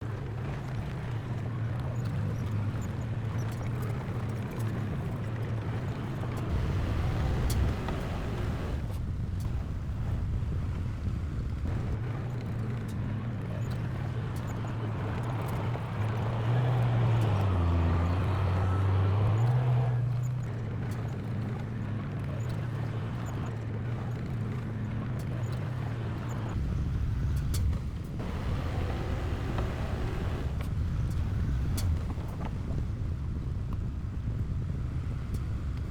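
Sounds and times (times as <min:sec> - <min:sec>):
heavy diesel engine running: 0:06.3 - 0:13.2, 0:26.6 - 0:34.0.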